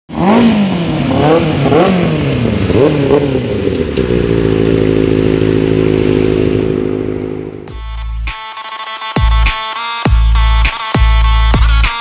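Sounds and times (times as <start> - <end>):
motorcycle engine revving: 0.1 - 8.0.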